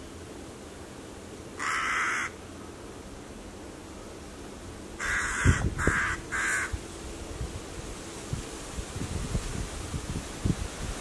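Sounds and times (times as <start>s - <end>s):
crow-like bird caws: 1.6s - 2.4s, 5.0s - 6.8s.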